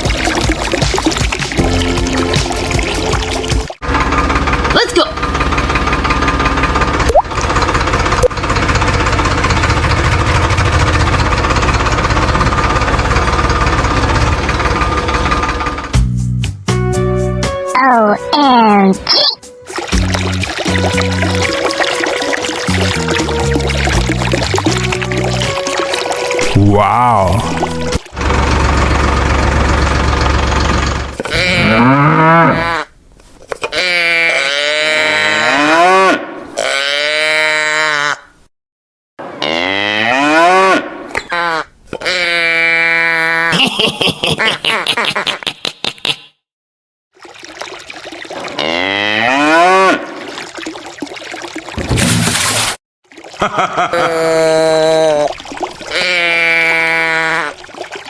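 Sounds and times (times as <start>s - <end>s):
tractor engine chugging: 1.6s - 16.0s, 27.6s - 31.2s
cattle mooing: 31.3s - 32.9s, 33.8s - 38.1s.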